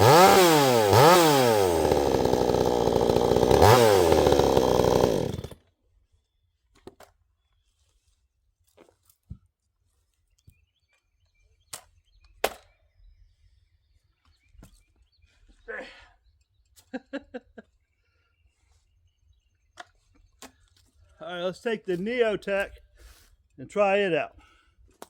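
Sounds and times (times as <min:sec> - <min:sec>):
chainsaw cutting at full throttle: 0:00.0 - 0:05.6.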